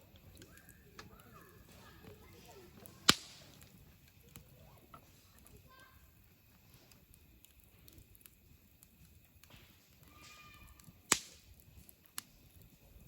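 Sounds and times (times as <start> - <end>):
campfire crackling: 0.0 - 13.0
loud pop of fire: 3.0 - 3.7, 9.5 - 11.6.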